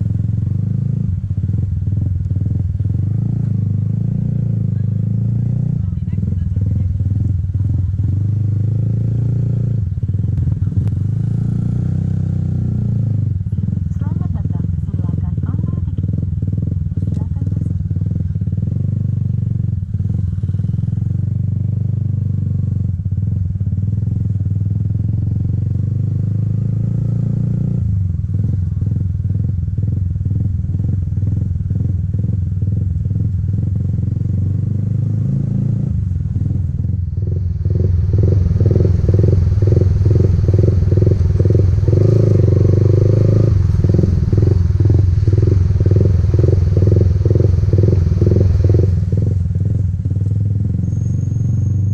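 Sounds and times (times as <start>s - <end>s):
motorcycle engine running: 0.0s - 51.9s
rushing hiss: 37.2s - 50.2s.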